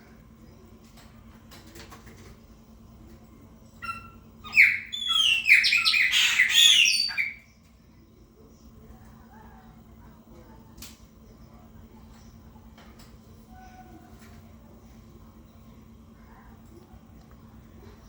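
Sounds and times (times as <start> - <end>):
blackbird singing whistled notes: 3.8 - 7.4.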